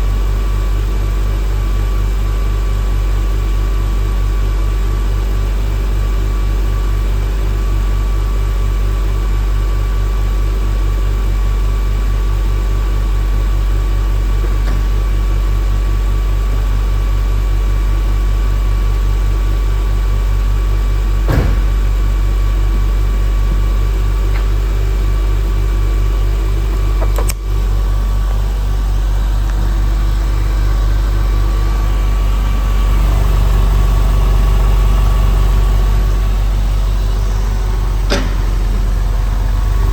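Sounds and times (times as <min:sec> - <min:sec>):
car engine idling: 0:09.9 - 0:39.9.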